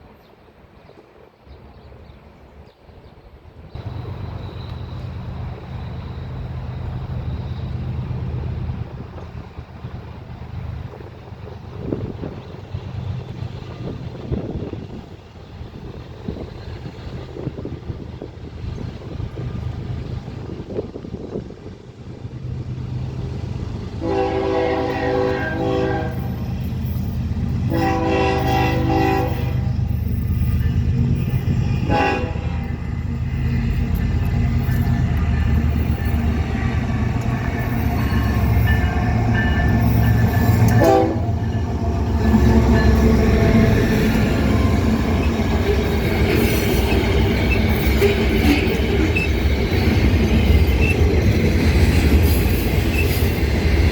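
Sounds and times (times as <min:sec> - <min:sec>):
faint high whine: 0:03.8 - 0:08.4
locomotive engine drone: 0:03.8 - 0:53.9
locomotive air horn blasts: 0:24.0 - 0:26.4, 0:27.7 - 0:29.9, 0:31.7 - 0:32.8, 0:37.7 - 0:43.2.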